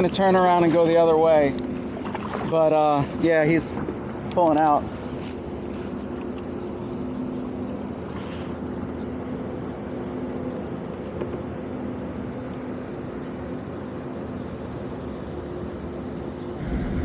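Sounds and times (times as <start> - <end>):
boat diesel engine droning: 16.6 - 17.0.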